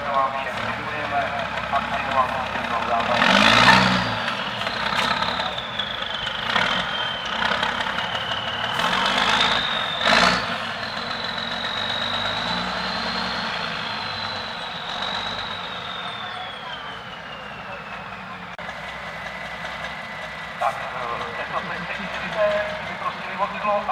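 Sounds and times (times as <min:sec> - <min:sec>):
diesel truck engine idling: 0:00.0 - 0:23.9.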